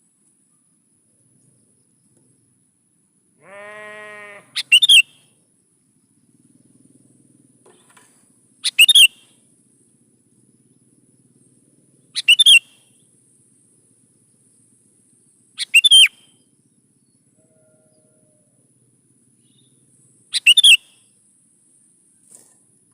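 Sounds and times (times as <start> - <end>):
bulbul singing: 4.6 - 5.3, 7.6 - 18.1, 19.3 - 21.2.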